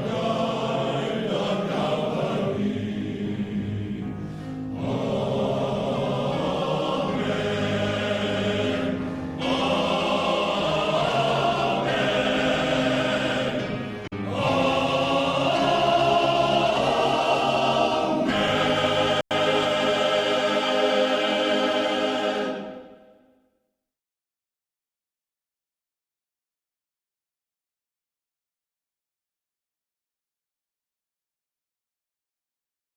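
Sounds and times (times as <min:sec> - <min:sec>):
male choir singing sustained chords: 0:00.0 - 0:23.2.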